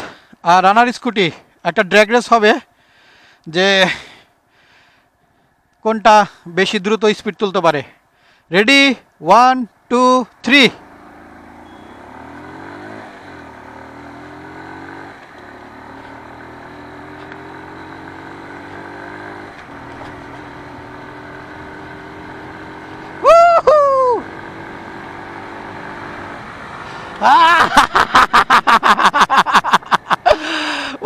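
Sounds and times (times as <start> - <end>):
wind and road noise: 0.0 - 31.0
motorcycle engine accelerating: 10.6 - 30.8
loud short voice call: 23.2 - 24.3.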